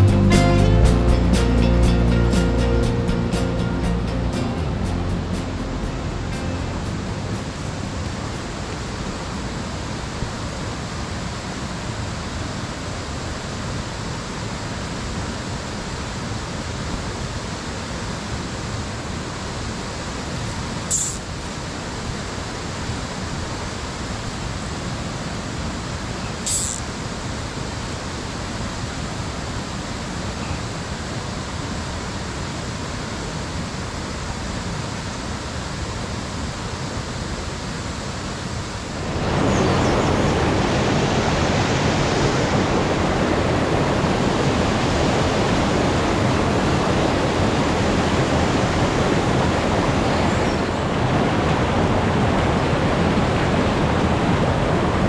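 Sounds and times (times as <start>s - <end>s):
stream rushing over rocks: 29.6s - 55.0s.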